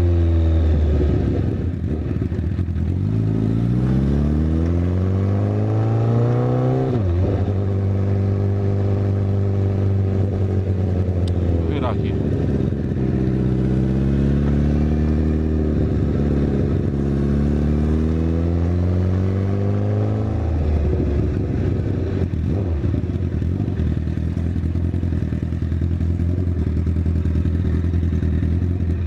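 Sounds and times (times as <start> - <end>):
motorcycle engine revving: 0.0 - 29.0
motorcycle engine idling unevenly: 21.4 - 29.0.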